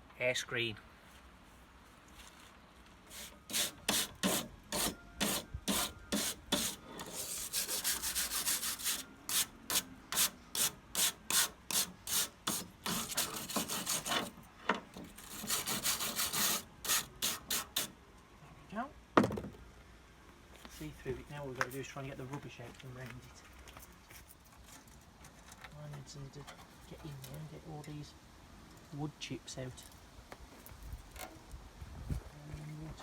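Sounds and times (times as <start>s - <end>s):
scrubbing strokes: 3.1s - 9.5s, 10.2s - 14.3s.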